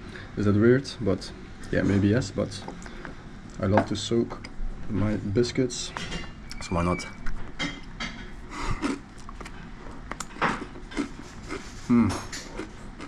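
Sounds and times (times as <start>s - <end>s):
faint room murmur: 0.0s - 13.0s
crockery and cutlery clinking: 7.0s - 8.3s.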